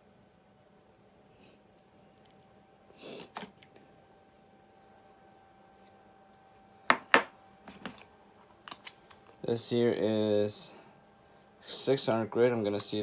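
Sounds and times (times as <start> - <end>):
hard pieces knocking together: 6.9 - 8.0.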